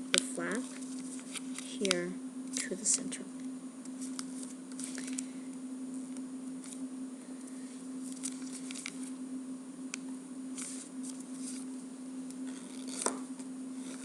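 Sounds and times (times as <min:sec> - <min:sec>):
steady low hum: 0:00.0 - 0:14.0
paper rustling and crinkling: 0:00.1 - 0:02.0, 0:04.0 - 0:05.3, 0:08.0 - 0:09.2.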